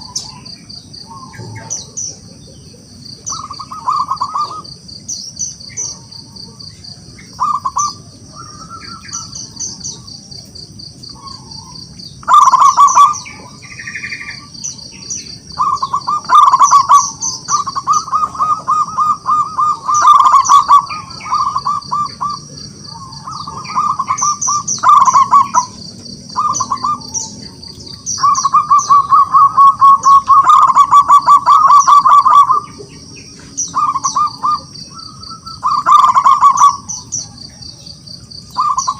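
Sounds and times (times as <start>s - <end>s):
dove cooing: 0.0s - 38.9s
high-pitched chirping: 11.1s - 37.7s, 38.3s - 38.9s.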